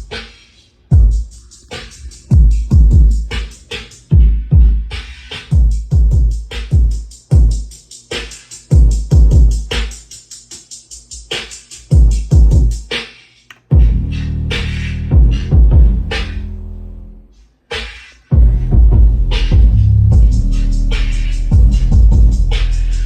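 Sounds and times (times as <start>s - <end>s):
electronic hip-hop music: 0.0s - 23.0s
heavy bass drops: 0.9s - 3.4s, 13.7s - 17.3s, 18.4s - 23.0s.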